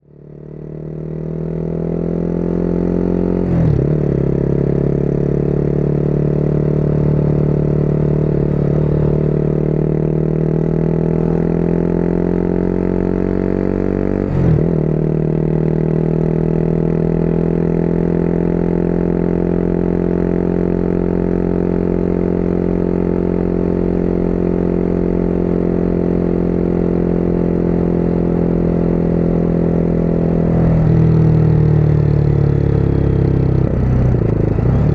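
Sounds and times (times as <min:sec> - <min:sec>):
motorcycle engine shifting gears: 0:00.6 - 0:19.3, 0:26.6 - 0:34.9.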